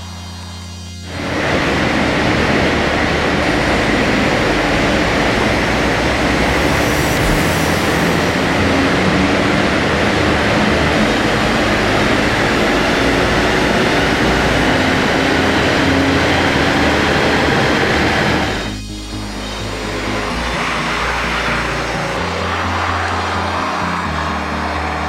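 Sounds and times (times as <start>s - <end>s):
diesel engine under load: 1.0s - 25.0s
tyre and roller noise: 1.1s - 18.8s.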